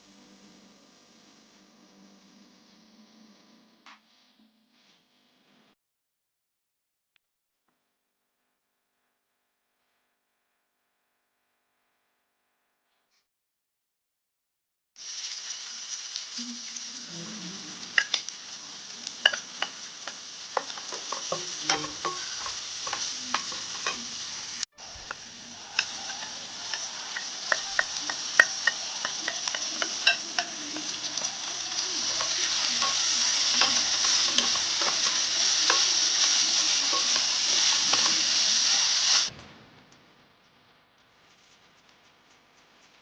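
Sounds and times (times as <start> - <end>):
food sizzling in hot oil: 15.0 - 39.3
utensil clicking against pan: 17.9 - 18.4, 19.0 - 24.1, 25.1 - 38.2.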